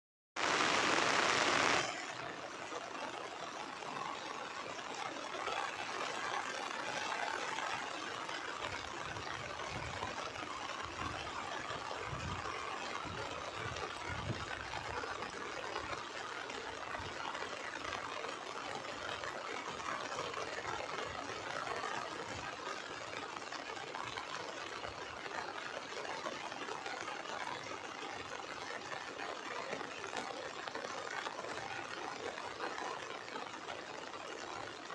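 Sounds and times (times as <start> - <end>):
heavy rain hissing: 0.4 - 4.3.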